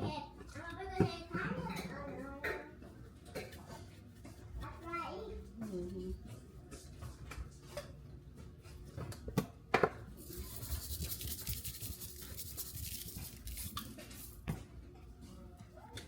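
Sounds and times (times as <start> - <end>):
scratchy rubbing: 10.2 - 14.4.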